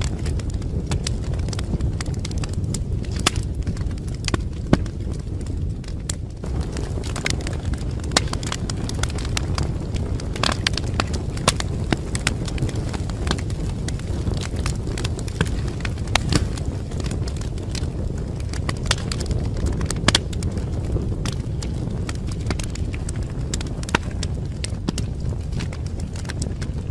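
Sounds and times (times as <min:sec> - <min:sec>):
steady low rumble: 0:00.0 - 0:26.9
wood fire crackling: 0:00.0 - 0:26.9.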